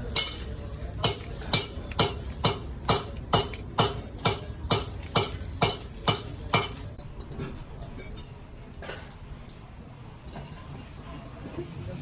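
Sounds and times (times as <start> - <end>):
metallic tapping: 0.0 - 6.9.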